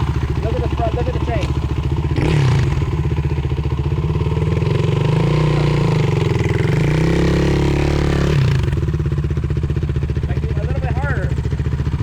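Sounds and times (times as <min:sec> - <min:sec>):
quad engine revving: 0:00.0 - 0:09.2.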